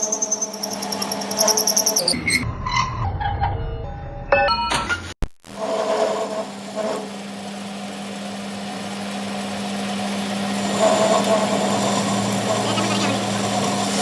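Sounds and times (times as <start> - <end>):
power tool humming and grinding: 5.6 - 14.0.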